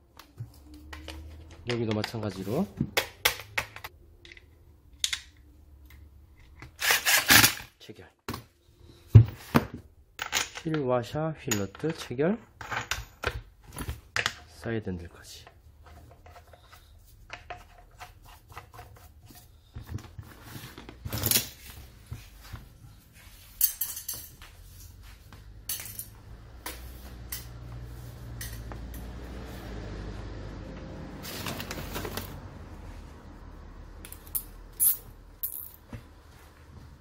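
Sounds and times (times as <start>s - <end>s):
metal tools clinking: 23.6s - 24.4s, 25.7s - 26.2s, 34.1s - 35.8s.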